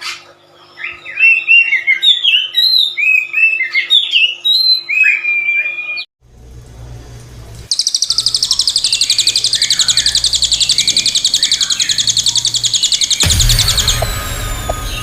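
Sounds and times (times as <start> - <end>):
loud high pulsed trill: 7.8 - 15.0
low hum: 9.8 - 15.0.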